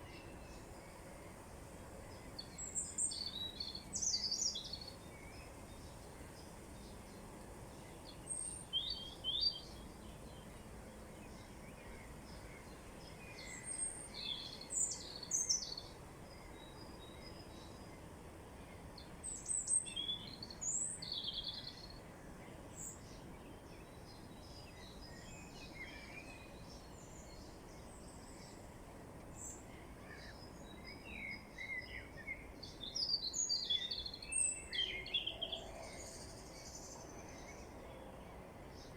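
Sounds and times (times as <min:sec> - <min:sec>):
outdoor background hiss: 0:00.0 - 0:38.9
songbirds chirping: 0:00.0 - 0:38.9.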